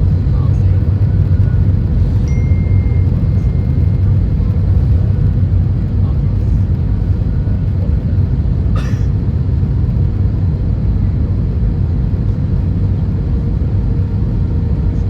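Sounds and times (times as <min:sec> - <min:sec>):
faint steady hum: 0:00.0 - 0:10.2
aircraft cabin rumble: 0:00.0 - 0:15.0.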